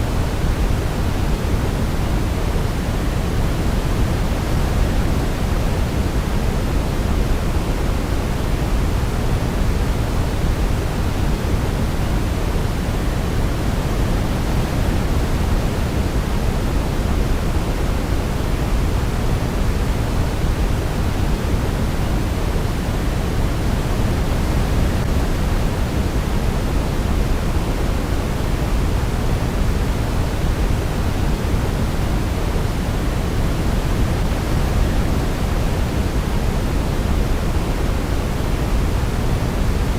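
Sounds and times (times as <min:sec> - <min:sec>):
low white noise shush: 0:00.0 - 0:39.9.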